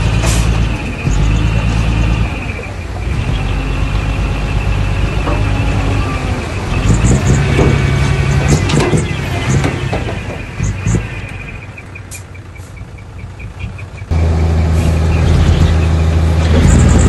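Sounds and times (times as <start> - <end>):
heavy diesel engine working: 0.0 - 17.0
metallic clanks: 6.9 - 11.4.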